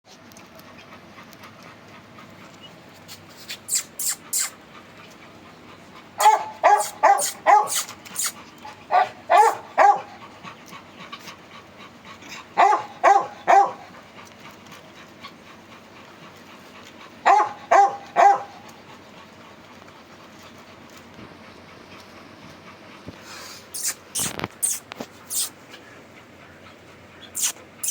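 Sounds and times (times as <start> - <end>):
puppy squeaks: 3.4 - 4.6, 6.2 - 8.4, 23.8 - 25.5, 27.4 - 27.9
puppy barking: 6.2 - 10.2, 12.6 - 13.9, 17.2 - 18.6.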